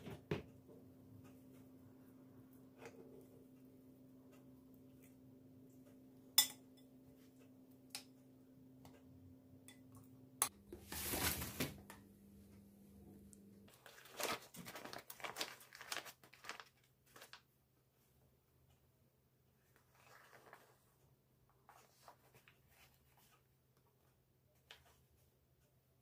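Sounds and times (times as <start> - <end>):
rustling crinkling: 10.7 - 12.0, 13.7 - 17.5, 19.6 - 23.5
faint steady hum: 11.6 - 13.8.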